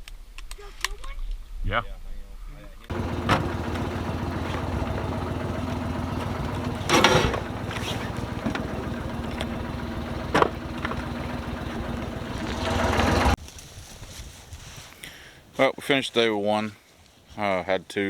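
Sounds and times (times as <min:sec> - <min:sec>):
small engine running: 0:02.9 - 0:13.4.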